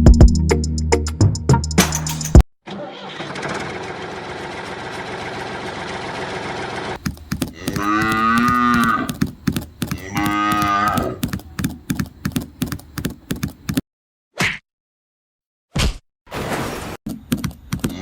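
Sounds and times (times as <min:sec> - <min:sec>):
steady clicking: 0:07.0 - 0:13.8
cow mooing: 0:07.5 - 0:09.2, 0:09.8 - 0:11.2.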